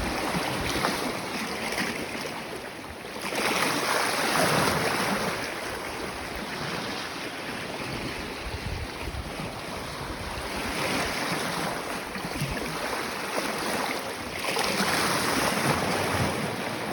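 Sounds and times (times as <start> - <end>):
wind buffeting microphone: 0.0 - 1.5, 5.7 - 12.9.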